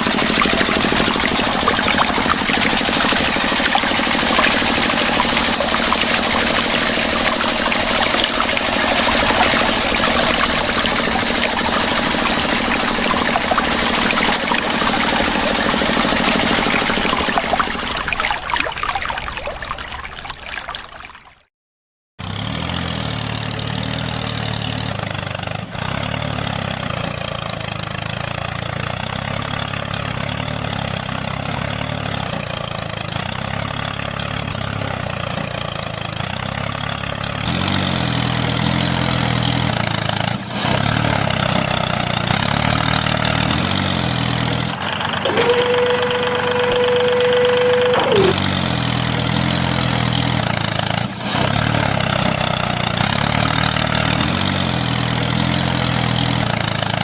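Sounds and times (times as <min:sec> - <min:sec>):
steady humming tone: 0:00.0 - 0:19.5
motor chugging: 0:00.0 - 0:20.3, 0:30.2 - 0:57.0.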